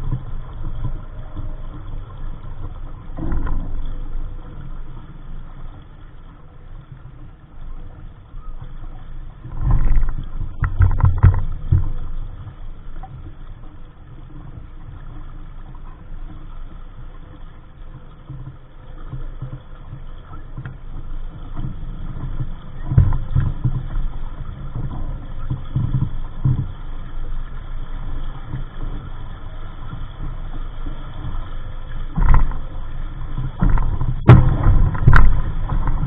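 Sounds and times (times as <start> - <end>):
water moving along hull: 0.0 - 36.0
wind rumbling on microphone: 0.0 - 36.0.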